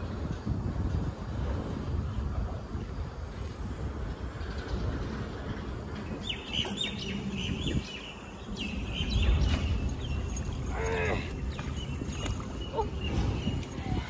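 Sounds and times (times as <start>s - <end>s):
small birds chirping: 6.0s - 14.0s.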